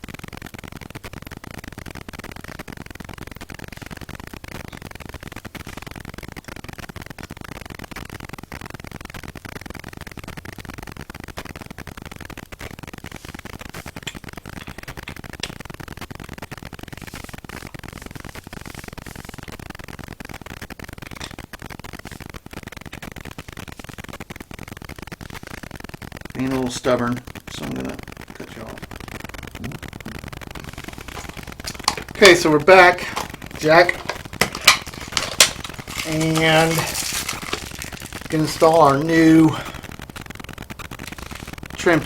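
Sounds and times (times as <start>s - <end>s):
steady hiss: 12.8s - 42.0s.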